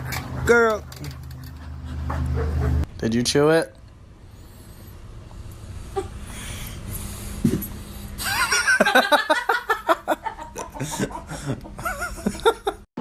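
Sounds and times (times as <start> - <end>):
person laughing: 8.2 - 12.8.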